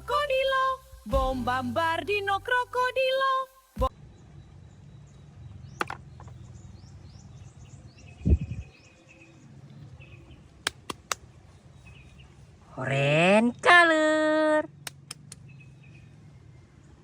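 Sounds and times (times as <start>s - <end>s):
faint bird chirping: 11.3s - 13.7s, 15.4s - 17.0s
sharp clicks: 14.8s - 15.4s.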